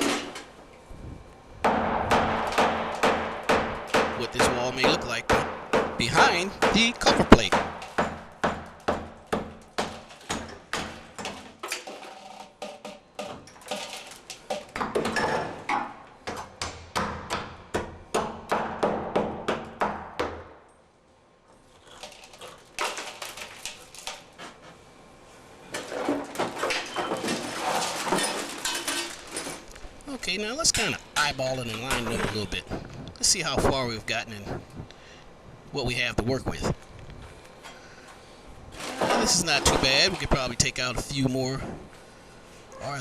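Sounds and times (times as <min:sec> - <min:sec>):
hammer knocking on concrete wall: 0:01.6 - 0:11.3, 0:15.7 - 0:20.6.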